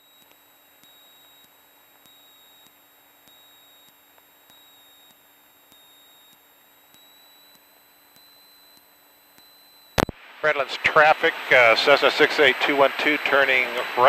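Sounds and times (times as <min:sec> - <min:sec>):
soft electrical tick: 0:00.0 - 0:14.0
steady high whine: 0:00.0 - 0:14.0
faint intercom hiss: 0:10.1 - 0:14.0.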